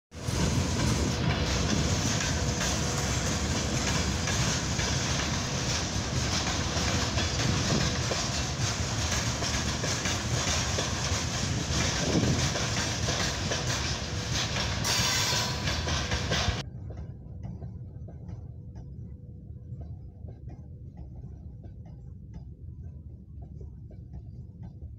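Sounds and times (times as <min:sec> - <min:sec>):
train wheels rumbling on rails: 0:00.1 - 0:18.6
wheels clacking over rail joints: 0:00.4 - 0:16.6.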